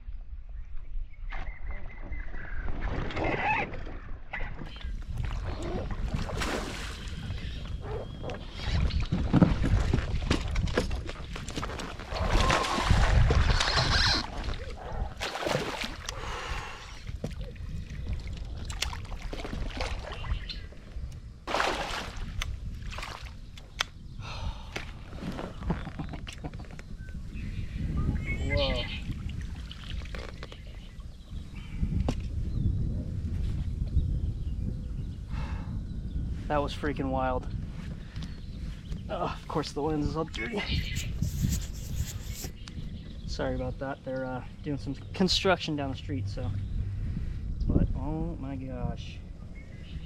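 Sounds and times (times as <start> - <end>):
water sloshing and splashing: 2.7 - 7.4, 8.3 - 20.8, 21.5 - 23.8, 29.1 - 30.9
low rushing noise: 45.5 - 48.4.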